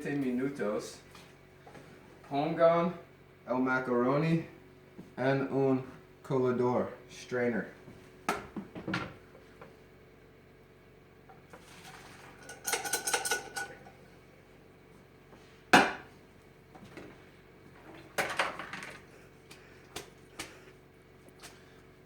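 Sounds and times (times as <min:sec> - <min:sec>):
metal pot and colander clattering: 0:11.6 - 0:13.9.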